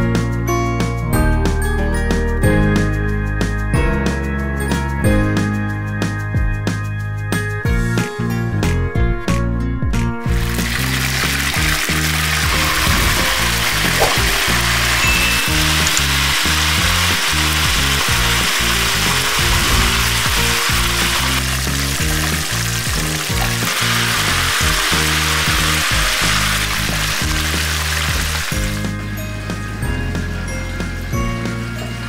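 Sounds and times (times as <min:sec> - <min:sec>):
background music: 0:00.0 - 0:32.0
chicken frying in hot oil: 0:10.3 - 0:29.0.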